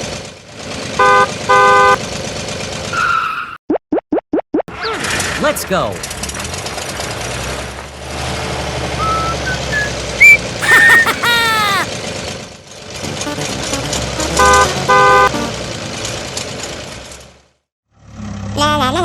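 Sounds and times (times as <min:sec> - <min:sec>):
mini tractor engine droning: 0:04.8 - 0:17.4
rising whistle: 0:09.0 - 0:11.0.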